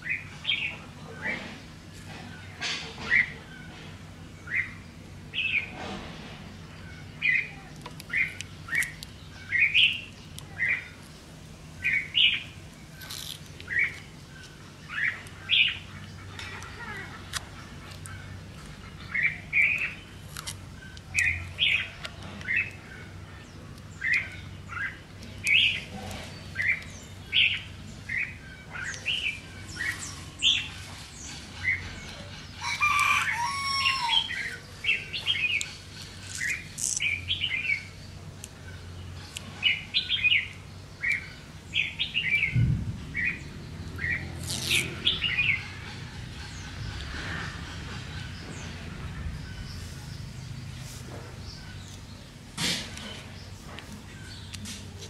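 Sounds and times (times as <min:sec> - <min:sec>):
small birds chirping: 0:00.0 - 0:55.0
loud bird call: 0:27.4 - 0:35.3.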